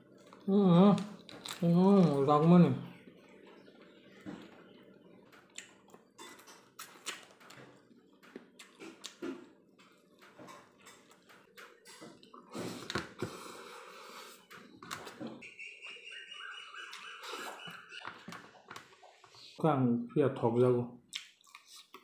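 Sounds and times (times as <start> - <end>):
wet mouth smacks and clicks: 6.8 - 7.3
person chewing and sucking food: 6.8 - 7.6, 8.3 - 9.5, 21.1 - 22.0.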